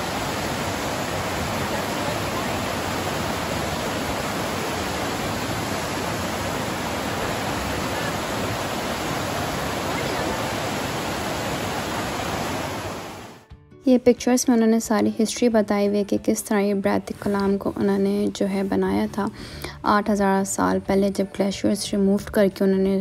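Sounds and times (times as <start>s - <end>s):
river rushing over rocks: 0.0s - 13.4s.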